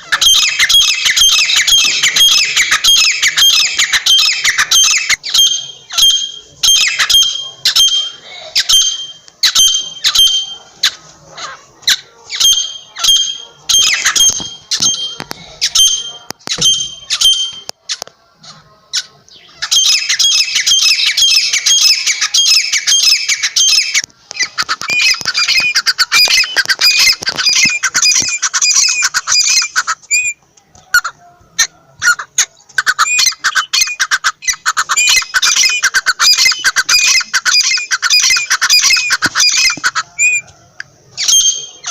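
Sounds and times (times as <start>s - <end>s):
francolin calling: 0.0s - 10.8s, 11.4s - 17.7s, 31.0s - 40.5s, 41.1s - 41.9s.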